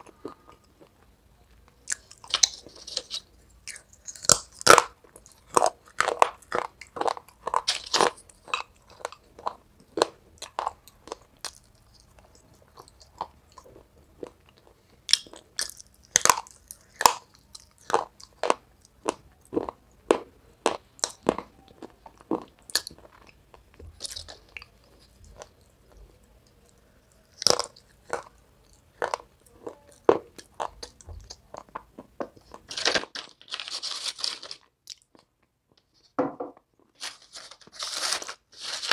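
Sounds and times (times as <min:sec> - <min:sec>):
rustling scrape: 0:32.7 - 0:34.6, 0:37.0 - 0:38.9.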